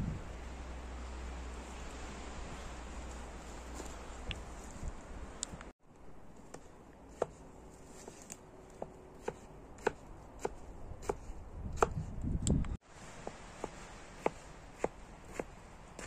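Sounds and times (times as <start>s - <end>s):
low rumble: 0.0s - 6.3s
light chopping strikes: 8.2s - 12.0s.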